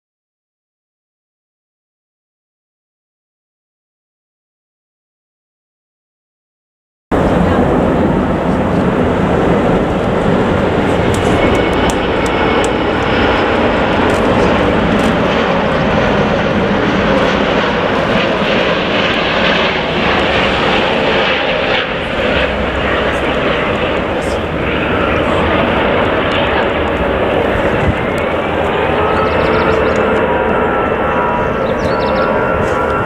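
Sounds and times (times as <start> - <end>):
jet airliner engines roaring: 7.1 - 33.0.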